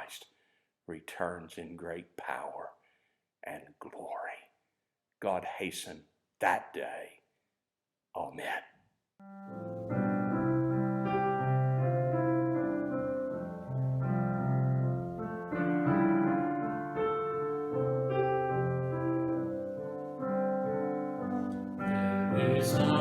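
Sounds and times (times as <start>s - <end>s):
solo piano chords: 9.2s - 23.0s.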